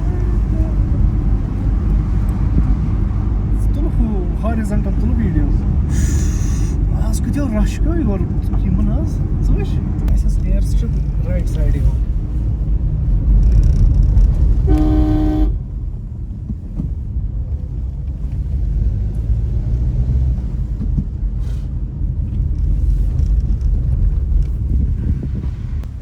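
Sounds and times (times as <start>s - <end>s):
moving vehicle rumble: 0.0s - 26.0s
vehicle horn: 14.6s - 15.6s.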